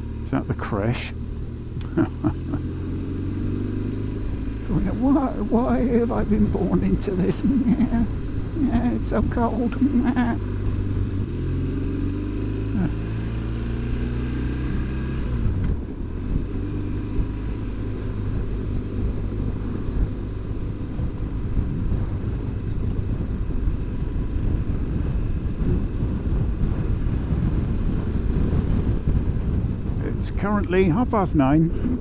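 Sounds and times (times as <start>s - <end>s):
motorcycle engine running: 0.0s - 32.0s
wind and road noise: 0.0s - 32.0s.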